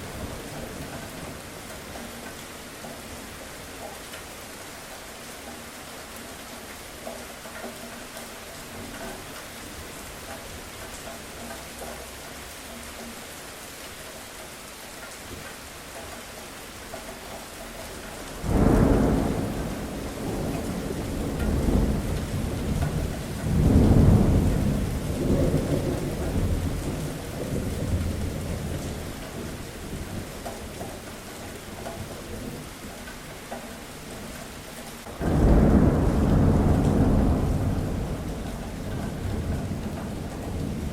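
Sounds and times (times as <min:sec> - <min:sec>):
steady rain falling: 0:00.0 - 0:40.9
thunder rumbling: 0:18.3 - 0:30.9, 0:35.0 - 0:40.9.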